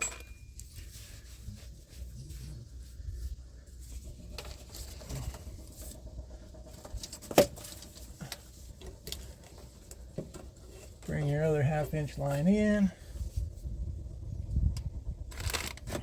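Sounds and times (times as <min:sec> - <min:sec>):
taps and rustles handling pipe: 0:00.0 - 0:02.1, 0:02.9 - 0:13.5.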